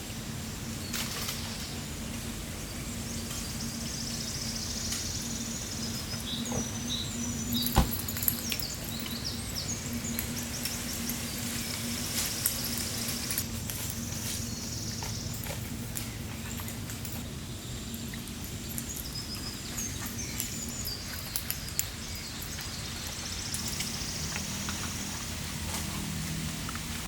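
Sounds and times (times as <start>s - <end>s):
steady low hum: 0.0s - 27.0s
high trilling insect calls: 2.6s - 15.4s, 17.4s - 26.6s.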